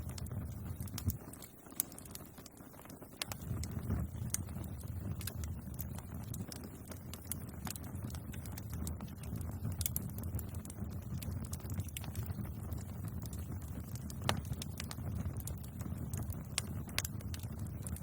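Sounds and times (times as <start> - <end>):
bonfire crackling: 0.0 - 18.0.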